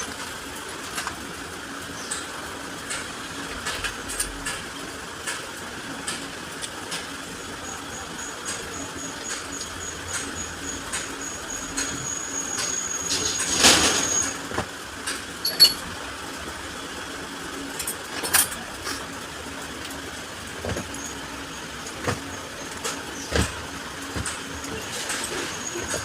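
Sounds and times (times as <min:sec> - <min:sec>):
steady background hum: 0:00.0 - 0:26.0
metal tools clicking and knocking: 0:15.4 - 0:15.9.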